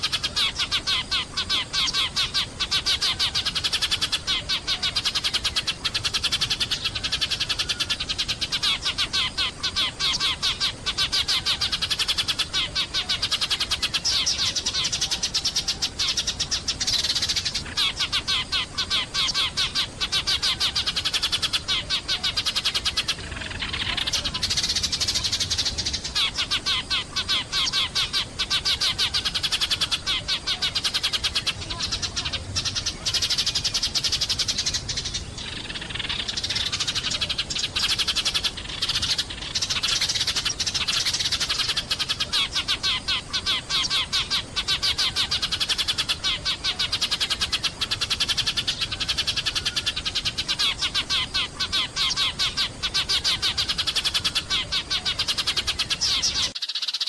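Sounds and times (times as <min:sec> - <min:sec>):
sparrows chirping: 0:00.0 - 0:57.0.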